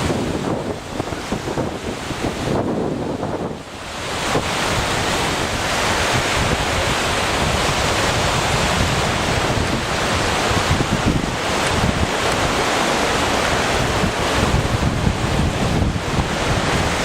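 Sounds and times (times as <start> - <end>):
waves washing onto shore: 0.0 - 17.0
wind on microphone: 0.0 - 17.0.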